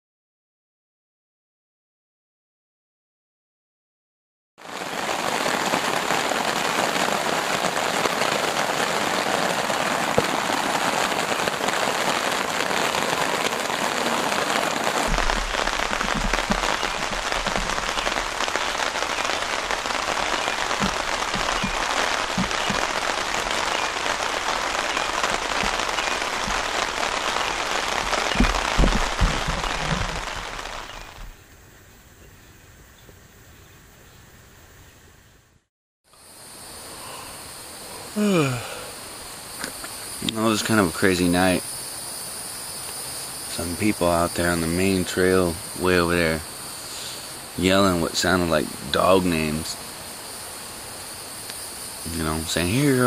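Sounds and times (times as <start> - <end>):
rain falling: 4.6 - 31.4, 36.2 - 53.0
soft low thumps: 15.1 - 18.3, 28.3 - 31.3.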